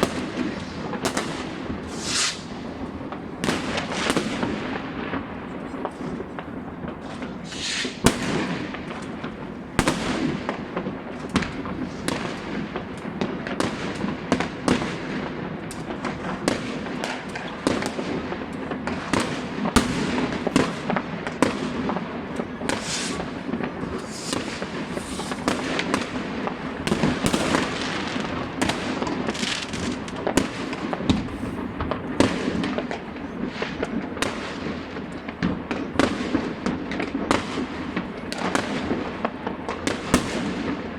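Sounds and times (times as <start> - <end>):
fireworks and firecrackers banging: 0.0 - 40.9.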